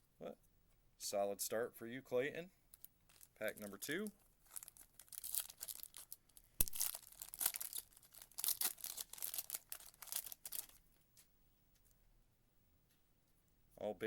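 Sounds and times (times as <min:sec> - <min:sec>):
foil wrapper tearing and crinkling: 0:02.8 - 0:10.8.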